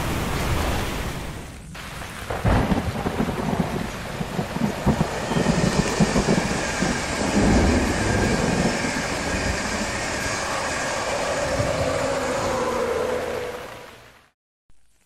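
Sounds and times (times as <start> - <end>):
train coaches rumbling: 3.5 - 14.0
locomotive whine: 4.1 - 14.3.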